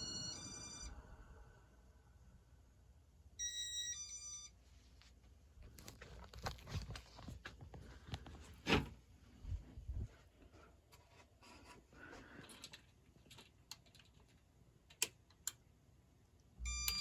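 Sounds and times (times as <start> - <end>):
two-tone electronic beep: 0.0 - 1.4.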